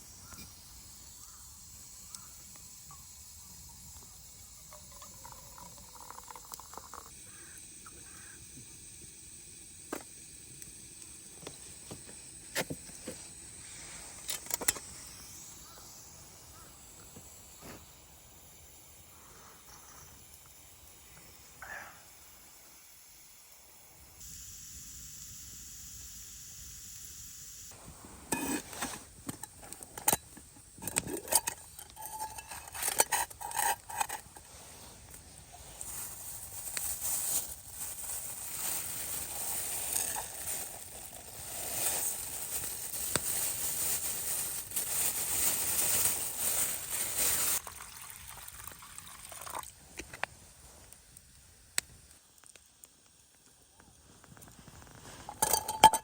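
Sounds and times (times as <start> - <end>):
steady hissing: 0.0 - 56.0
cookware clinking and knocking: 55.3 - 56.0.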